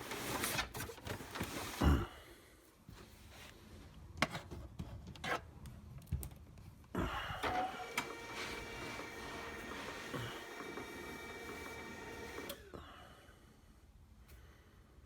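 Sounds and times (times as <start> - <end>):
printer humming: 7.2 - 12.7.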